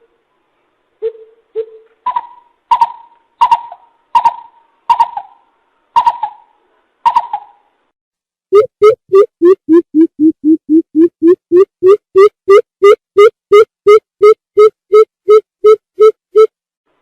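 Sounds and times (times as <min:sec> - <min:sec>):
bird hooting calls: 0:02.1 - 0:05.4.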